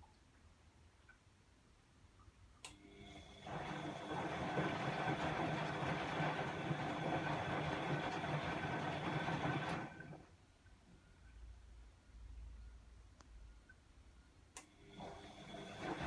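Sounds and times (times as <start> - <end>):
washing machine spinning: 2.9 - 10.3, 14.8 - 16.0.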